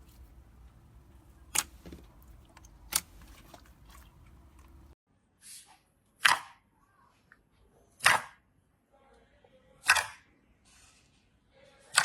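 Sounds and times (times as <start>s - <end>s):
slime squishing: 0.0s - 5.0s.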